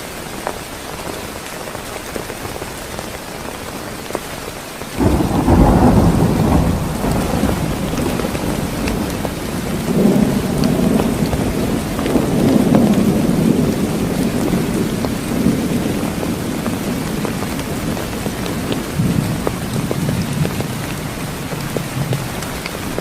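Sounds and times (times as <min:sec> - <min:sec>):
heavy rain falling: 0:00.0 - 0:23.0
raindrop ticks: 0:04.9 - 0:23.0
thunder rumbling: 0:05.0 - 0:23.0.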